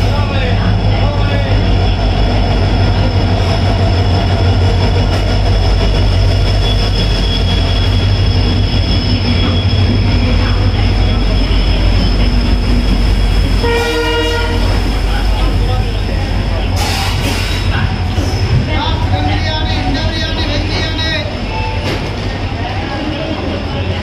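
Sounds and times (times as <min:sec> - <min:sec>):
train coaches rumbling: 0:00.0 - 0:24.0
high-pitched wheel squeal: 0:06.5 - 0:10.5
train horn: 0:13.6 - 0:14.8.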